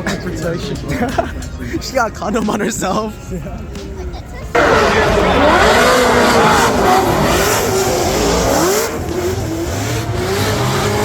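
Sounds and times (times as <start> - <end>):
car engine revving: 4.5 - 11.0.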